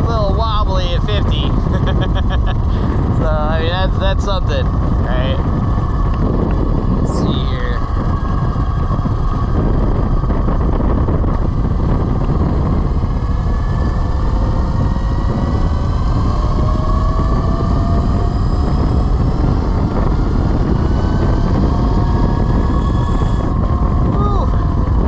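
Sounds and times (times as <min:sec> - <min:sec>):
electric motor whine: 0:00.0 - 0:25.0
wind and road noise: 0:00.0 - 0:25.0.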